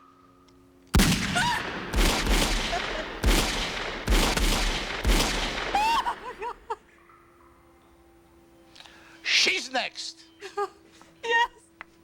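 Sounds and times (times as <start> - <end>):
volley of gunshots: 1.0 - 6.8.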